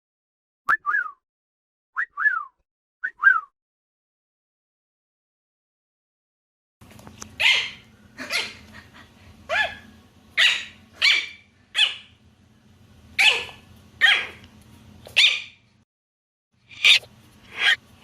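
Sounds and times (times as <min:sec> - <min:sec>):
dog barking: 0:09.5 - 0:12.1, 0:13.2 - 0:14.4.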